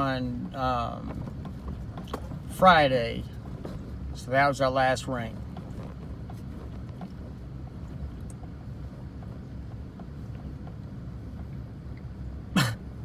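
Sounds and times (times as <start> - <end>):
wind rumble on microphone: 4.9 - 13.0.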